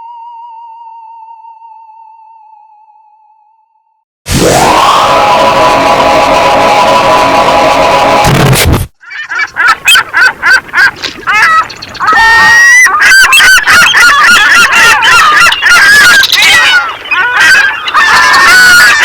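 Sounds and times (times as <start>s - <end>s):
geese honking: 9.0s - 19.0s.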